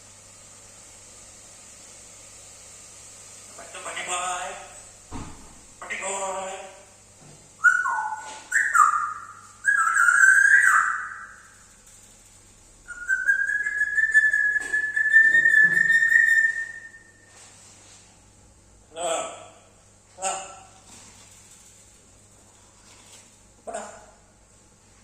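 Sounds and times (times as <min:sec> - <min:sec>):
parrot whistling: 0:07.6 - 0:11.5, 0:12.9 - 0:17.3.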